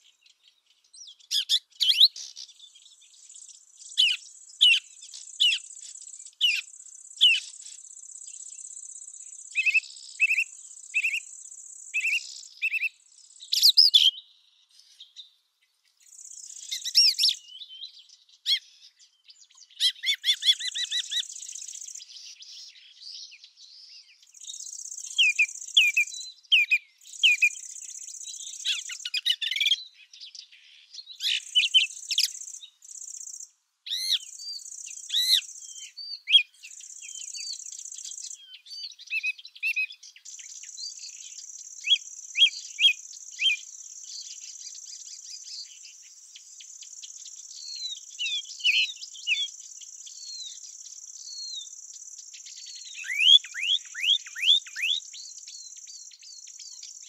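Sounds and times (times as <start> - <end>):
small birds chirping: 0.0 - 57.0
insects buzzing: 2.2 - 13.7, 16.0 - 17.4, 20.3 - 22.2, 24.3 - 26.2, 27.0 - 29.3, 31.2 - 33.6, 34.2 - 39.0, 40.1 - 57.0.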